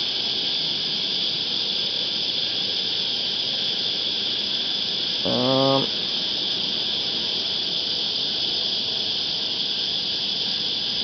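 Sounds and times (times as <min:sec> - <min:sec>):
cicadas buzzing: 0:00.0 - 0:11.0
man's low hum: 0:05.2 - 0:05.9.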